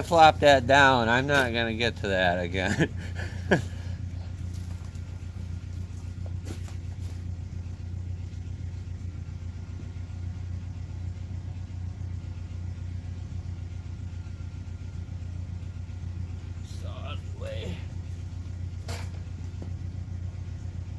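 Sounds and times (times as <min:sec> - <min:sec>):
tractor engine idling: 0:00.0 - 0:20.9.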